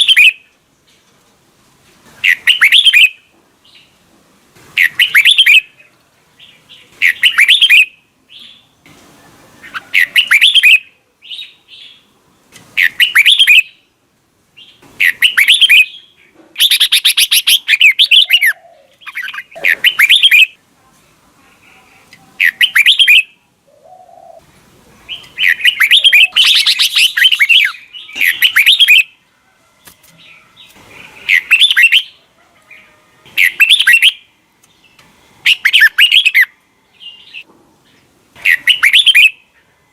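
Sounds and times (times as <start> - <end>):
bulbul singing: 2.2 - 3.9, 4.8 - 5.8, 6.4 - 8.7, 9.6 - 12.1, 12.8 - 13.9, 14.6 - 20.6, 22.1 - 24.4, 25.0 - 29.2, 29.8 - 39.5.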